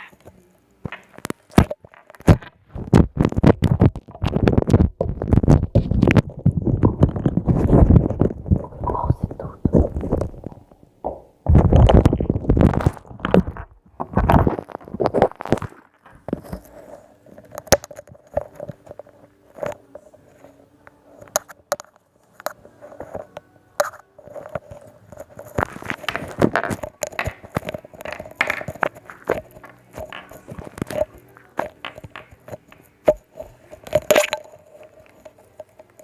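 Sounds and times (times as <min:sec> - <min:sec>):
slime squishing with sticky pops: 0:25.4 - 0:36.0.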